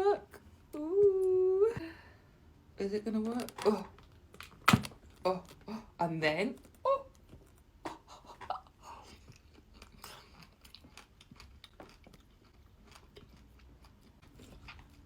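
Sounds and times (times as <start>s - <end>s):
chewing and biting fruit leather: 9.0s - 15.0s.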